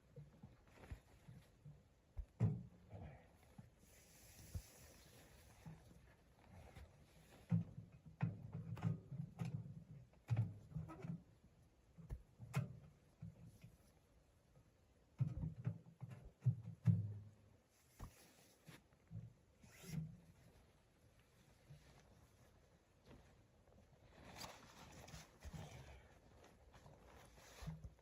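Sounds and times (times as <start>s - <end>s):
rustling: 19.6s - 28.0s.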